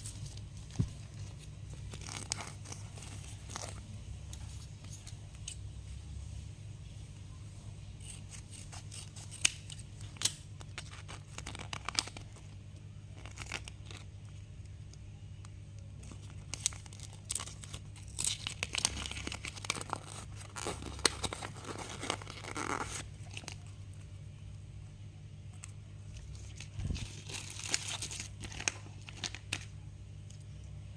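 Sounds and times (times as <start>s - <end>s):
plastic packaging tearing and crinkling: 0.0s - 5.0s, 8.0s - 14.7s, 15.8s - 23.8s, 26.1s - 29.7s
steady low hum: 0.0s - 30.9s.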